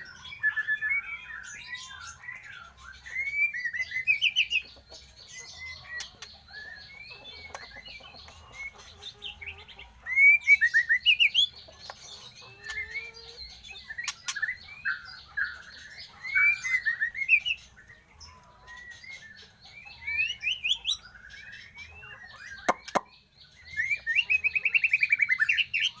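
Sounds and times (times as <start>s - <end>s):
bird singing whistled phrases: 3.0s - 4.5s, 10.1s - 11.5s, 23.7s - 26.0s.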